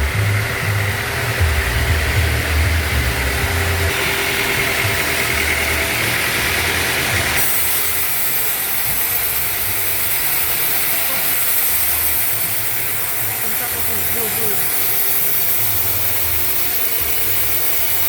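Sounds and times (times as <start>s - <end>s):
sawmill machinery hum: 0.0s - 18.0s
sharp high hiss: 0.0s - 18.0s.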